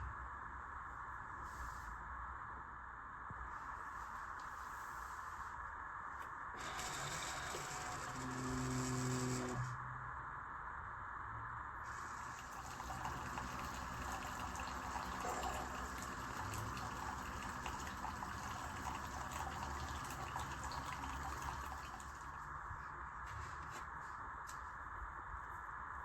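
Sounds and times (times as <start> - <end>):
coffee pouring into a cup: 6.6 - 9.6, 11.9 - 22.4.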